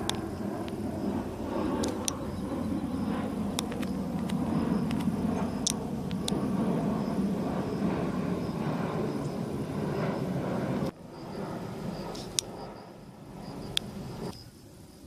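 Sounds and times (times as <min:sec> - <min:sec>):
airliner rumble: 0:00.0 - 0:15.0
sharp click: 0:01.8 - 0:02.2.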